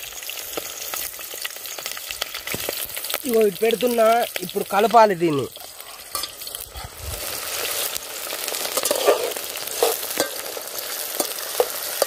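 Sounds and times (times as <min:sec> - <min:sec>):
onions sizzling in hot oil: 0:00.0 - 0:12.0
metal spoon scraping pot: 0:08.7 - 0:10.5.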